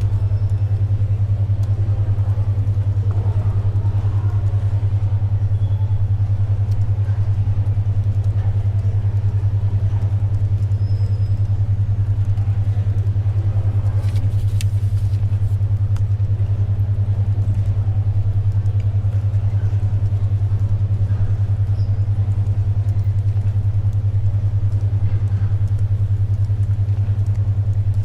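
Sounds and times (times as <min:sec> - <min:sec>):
faint library ambience: 0:00.0 - 0:28.0
pulsing low hum: 0:00.0 - 0:28.0
small clicks and rustles: 0:06.1 - 0:28.0.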